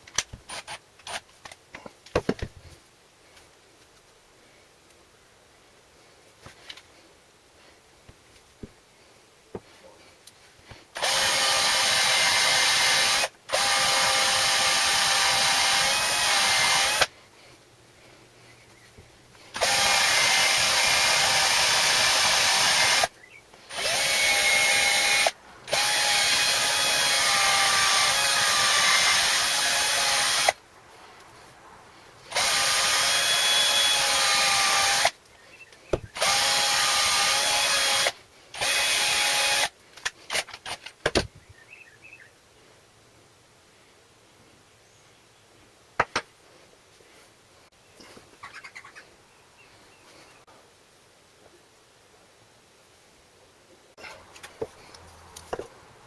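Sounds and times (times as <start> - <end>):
power drill whining: 11.0 - 17.1, 19.6 - 23.1, 23.7 - 30.6, 32.3 - 35.2, 36.1 - 39.7.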